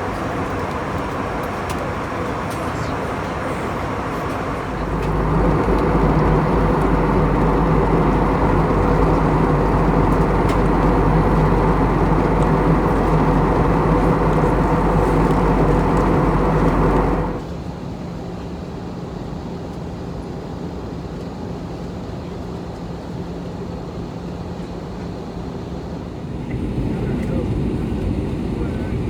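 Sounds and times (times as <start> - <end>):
airflow rushing in aircraft cabin: 0.0 - 17.7, 25.6 - 29.0
low hum of jet engines: 0.0 - 29.0.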